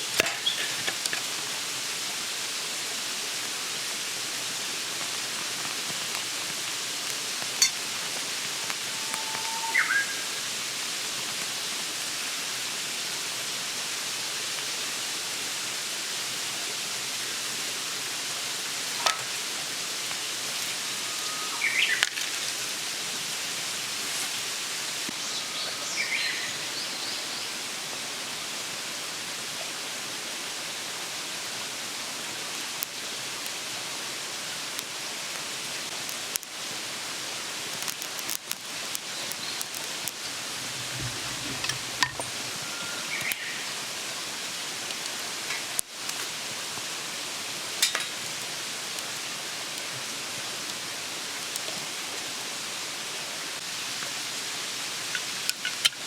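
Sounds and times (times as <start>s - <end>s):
outdoor hiss: 0.0s - 56.0s
bird chirps: 9.0s - 10.2s, 21.0s - 22.0s.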